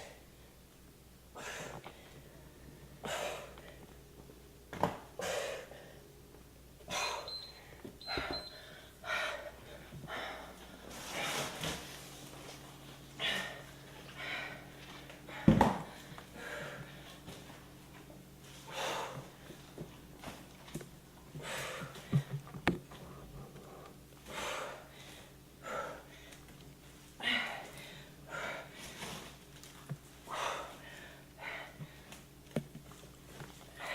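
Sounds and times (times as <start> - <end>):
person breathing hard: 1.3 - 3.9, 5.2 - 6.1, 6.9 - 11.6, 13.1 - 17.2, 18.6 - 19.6, 21.3 - 22.4, 23.0 - 26.5, 27.2 - 29.1, 30.2 - 32.3.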